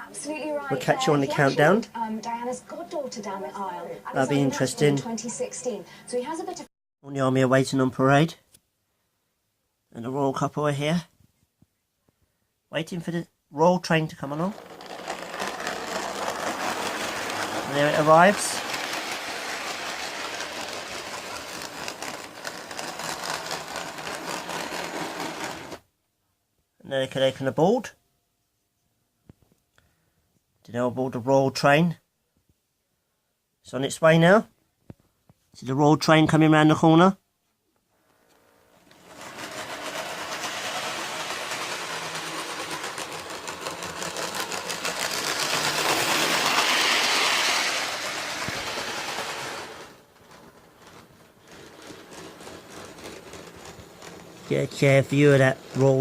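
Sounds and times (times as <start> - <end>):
wheels clicking on rails: 14.2 - 25.8, 38.8 - 56.0.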